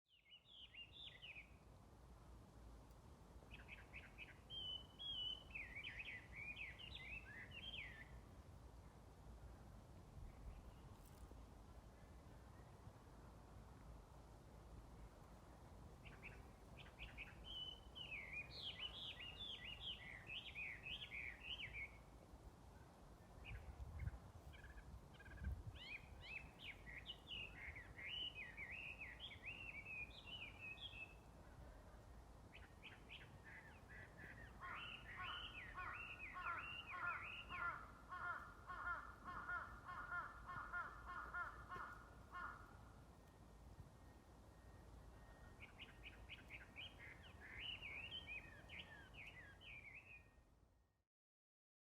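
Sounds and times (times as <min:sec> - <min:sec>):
songbird chirping song: 0:00.0 - 0:51.0
lower repeated bird calls: 0:16.0 - 0:22.1, 0:24.5 - 0:31.8, 0:32.6 - 0:43.0, 0:44.0 - 0:50.4.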